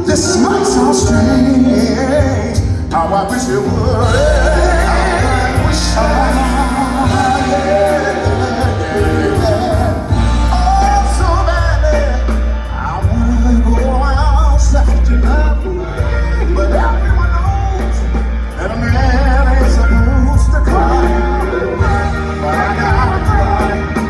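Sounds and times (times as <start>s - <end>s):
backing band with heavy bass: 0.0s - 24.0s
male vocal group singing: 0.0s - 24.0s.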